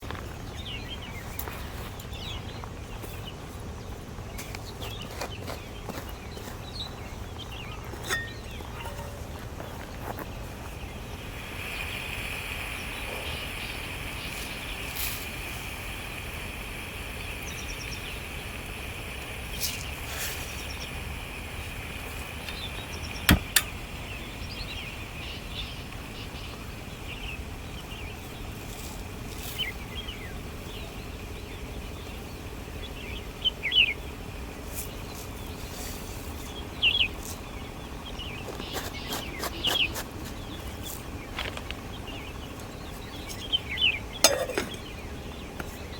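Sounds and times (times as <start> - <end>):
birds chirping: 0.0 - 45.9
sharp clicks and knocks: 23.3 - 23.8.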